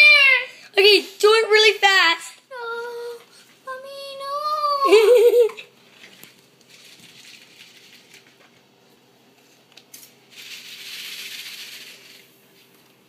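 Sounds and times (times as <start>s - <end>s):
crinkly rustling of duct: 5.9s - 8.6s.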